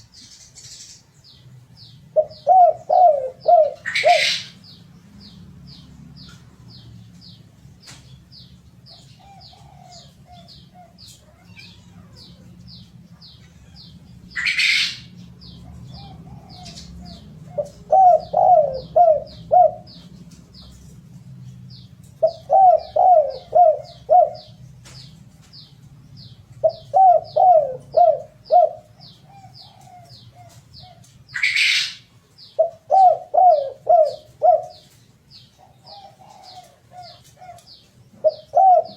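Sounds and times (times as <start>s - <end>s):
small bird chirping: 0.0s - 3.2s
doves cooing: 2.1s - 4.6s, 13.5s - 20.8s, 22.1s - 24.6s, 26.6s - 38.9s.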